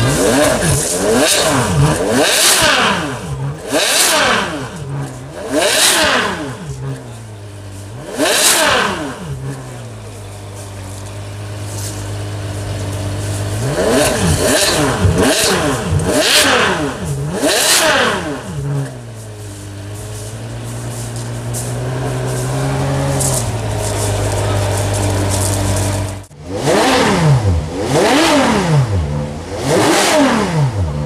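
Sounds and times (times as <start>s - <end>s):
car engine revving and idling: 0.0s - 31.0s.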